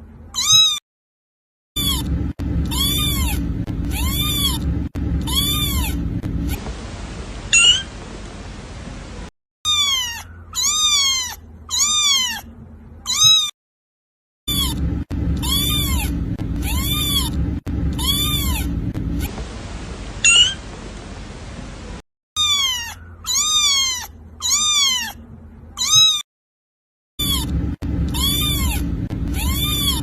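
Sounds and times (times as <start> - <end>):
kitten high cry: 0.3 - 0.8, 1.8 - 4.6, 5.2 - 6.0, 7.5 - 7.9, 9.7 - 13.6, 14.5 - 14.8, 15.4 - 17.4, 18.0 - 19.3, 20.2 - 20.6, 22.4 - 25.2, 25.8 - 26.3, 27.2 - 30.0
kitten meowing: 0.4 - 0.8, 1.8 - 6.6, 7.5 - 7.9, 9.7 - 13.5, 14.5 - 19.3, 20.2 - 20.6, 22.4 - 25.2, 25.8 - 26.2, 27.2 - 30.0.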